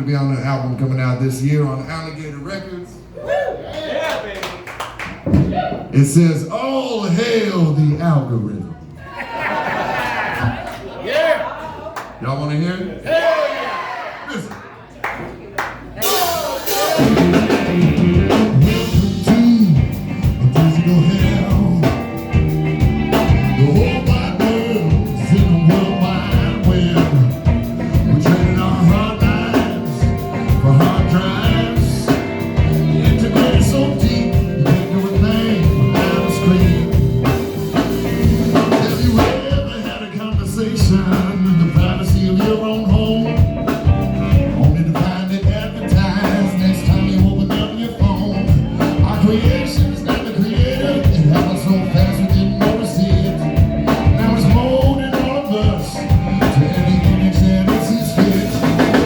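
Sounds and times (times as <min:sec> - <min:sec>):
drum kit beat: 0:15.8 - 0:59.0
blues-rock band playing: 0:15.9 - 0:59.0.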